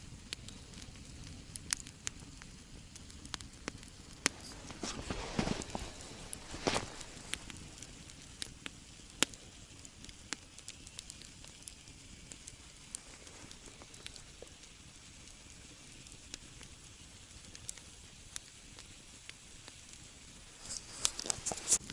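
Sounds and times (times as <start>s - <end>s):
campfire crackling: 0.0s - 21.9s
rough crunching noise: 4.1s - 7.9s, 20.5s - 21.9s.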